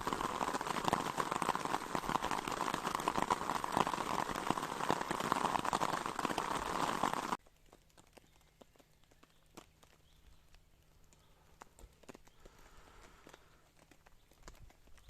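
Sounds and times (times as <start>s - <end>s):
rain falling hiss: 0.0s - 7.4s.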